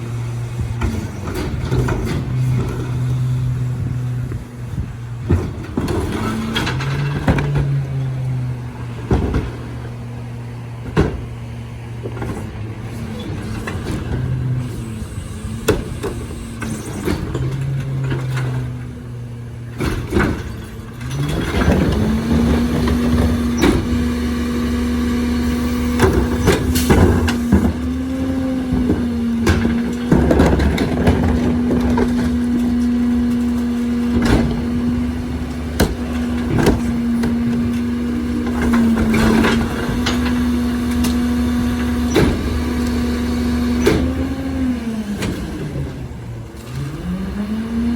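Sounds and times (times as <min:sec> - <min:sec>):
truck engine running: 0:00.0 - 0:47.9
clanks and knocks: 0:00.6 - 0:08.2, 0:09.0 - 0:10.0, 0:10.8 - 0:11.4, 0:19.8 - 0:45.6.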